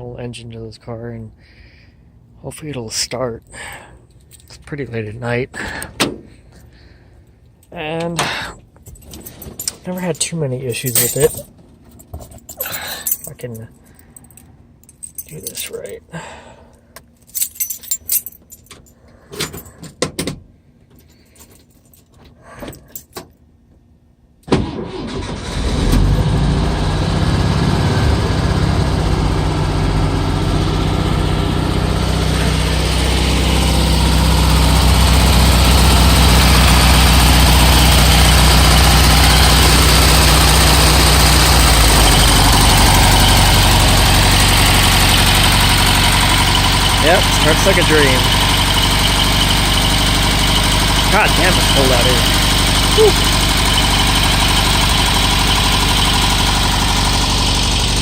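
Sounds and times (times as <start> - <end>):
car engine cranking and starting: 24.4 - 58.0.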